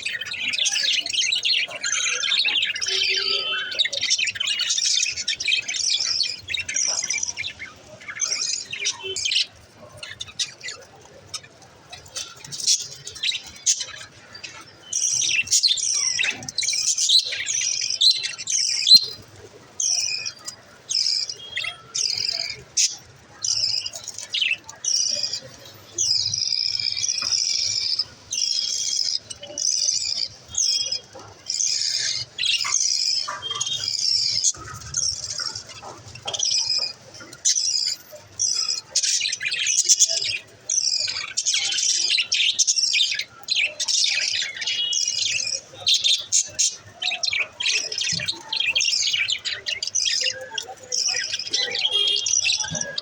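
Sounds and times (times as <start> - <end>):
budgerigars chirping: 26.2 - 53.0.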